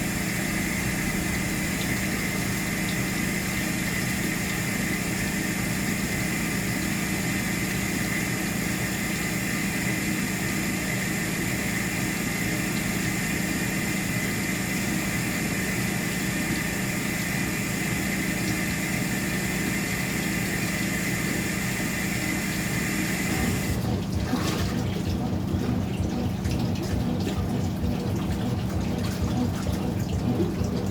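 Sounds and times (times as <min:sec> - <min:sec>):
washing machine pump whining: 0:00.0 - 0:30.9
running water: 0:11.1 - 0:30.9.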